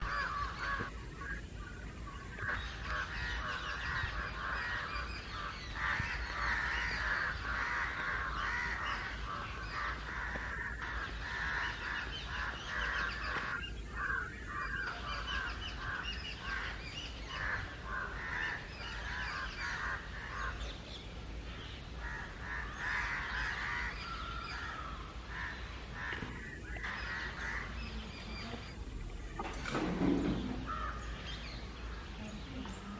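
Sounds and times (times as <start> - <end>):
crows cawing: 0.0 - 1.4, 2.3 - 20.8, 22.0 - 28.4, 30.6 - 32.2.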